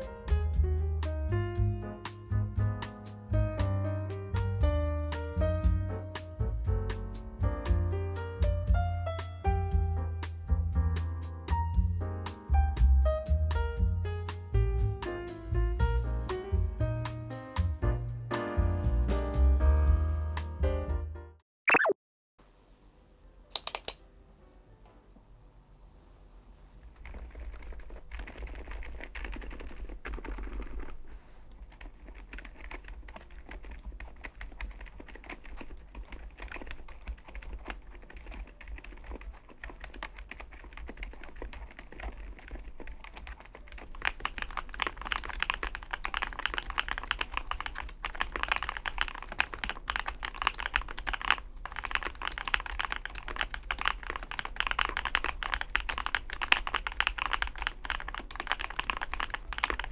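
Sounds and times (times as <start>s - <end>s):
mechanical keyboard keystroke clacks: 23.5s - 24.0s, 27.0s - 31.0s, 31.7s - 59.9s.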